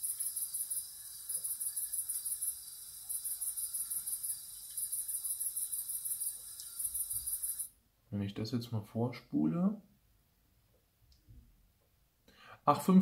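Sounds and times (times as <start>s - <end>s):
crickets chirping: 0.0s - 7.8s.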